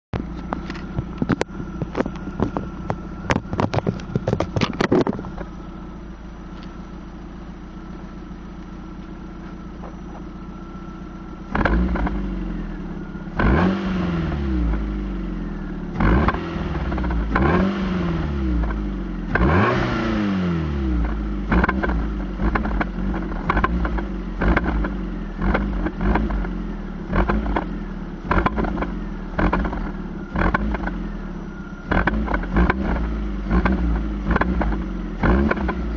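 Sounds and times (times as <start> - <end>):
car engine revving: 11.2 - 35.9.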